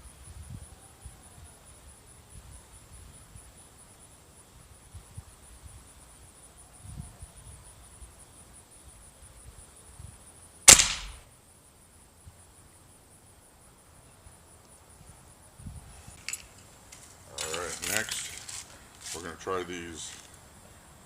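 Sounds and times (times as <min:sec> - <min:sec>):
air rifle shot: 0:10.7 - 0:11.3.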